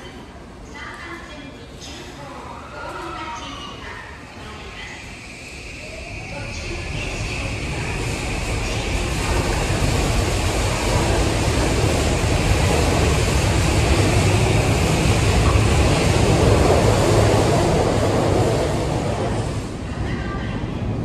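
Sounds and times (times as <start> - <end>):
electric train rumbling past: 4.4 - 21.0.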